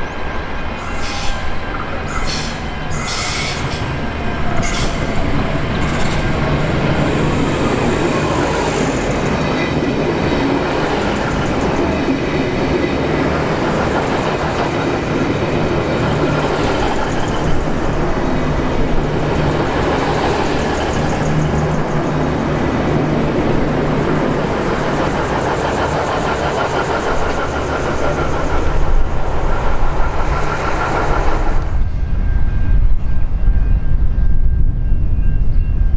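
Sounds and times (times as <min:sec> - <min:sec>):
passenger train running: 0:00.0 - 0:35.9.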